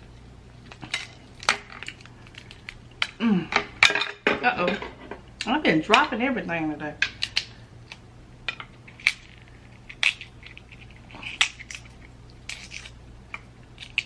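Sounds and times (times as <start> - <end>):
crab shells cracking: 0.6 - 3.2, 7.1 - 14.0.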